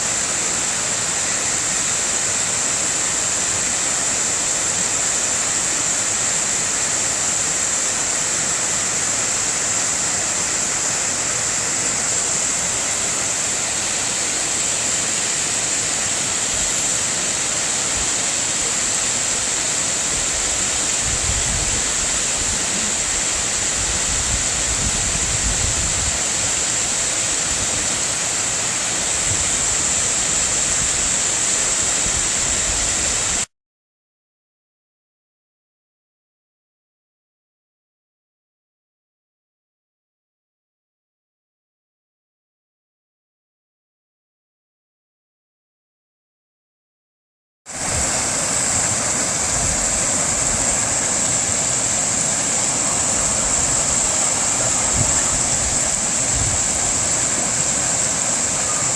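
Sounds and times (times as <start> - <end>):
waterfall rushing: 0.0 - 33.5, 47.7 - 58.9.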